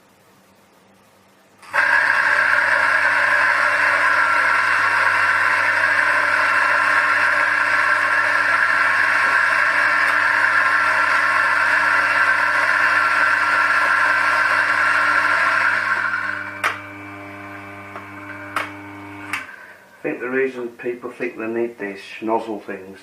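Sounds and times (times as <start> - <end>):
coffee grinder motor grinding: 1.6 - 19.8.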